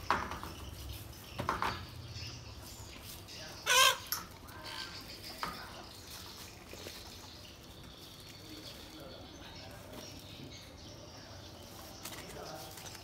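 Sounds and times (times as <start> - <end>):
bird squawking: 3.6 - 5.4.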